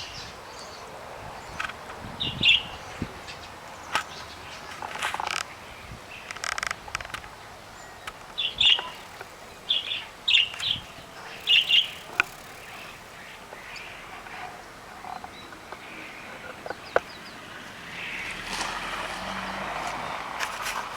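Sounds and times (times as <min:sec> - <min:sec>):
canary chirping: 0:07.8 - 0:18.3.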